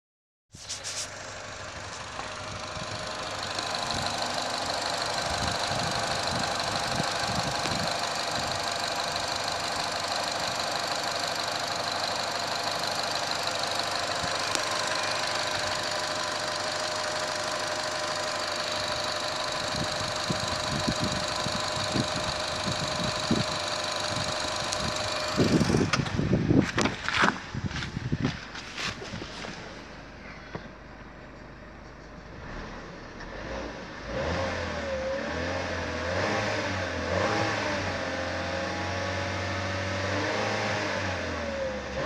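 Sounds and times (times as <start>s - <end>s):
high-pitched engine whine: 0.6s - 26.4s
car engine idling: 0.6s - 35.1s.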